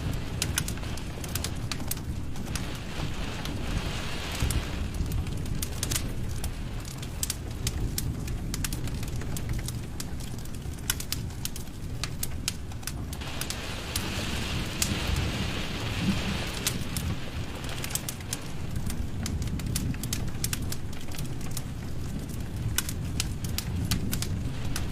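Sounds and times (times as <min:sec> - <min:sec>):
fire hissing: 0:00.0 - 0:07.3, 0:13.1 - 0:20.2
fire flames rumbling: 0:00.0 - 0:24.9
logs crackling and popping: 0:00.0 - 0:24.9.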